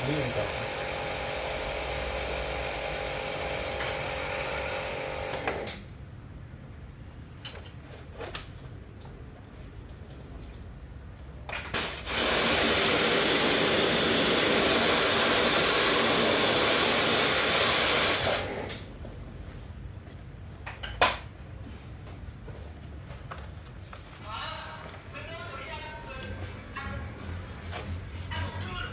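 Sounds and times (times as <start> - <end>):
high-pressure spray hissing: 11.8 - 18.5.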